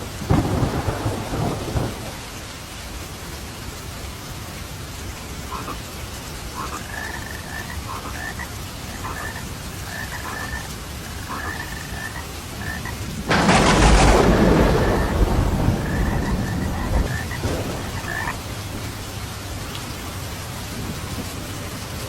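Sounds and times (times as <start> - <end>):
thunderclap rumbling: 0.0 - 2.3, 13.1 - 19.1
steady rain: 0.0 - 22.0
frogs croaking: 5.3 - 18.9.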